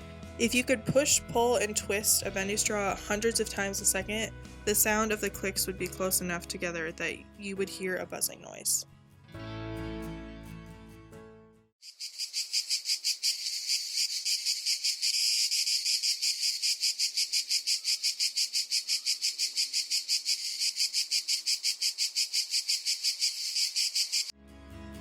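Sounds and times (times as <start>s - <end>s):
cicada buzzing: 11.8s - 24.3s.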